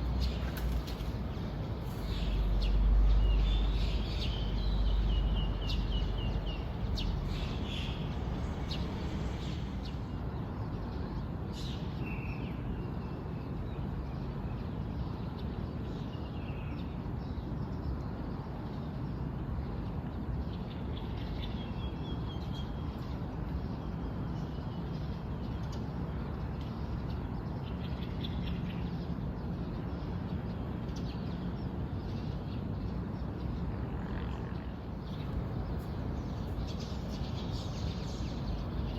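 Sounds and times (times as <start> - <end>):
small birds chirping: 0.0 - 10.2, 35.0 - 38.9
outdoor background hiss: 0.0 - 13.6, 34.6 - 38.9.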